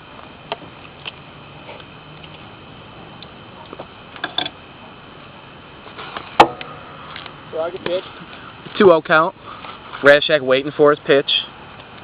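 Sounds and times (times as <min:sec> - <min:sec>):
background hiss: 0:00.0 - 0:12.0
sharp knock: 0:06.4 - 0:06.8.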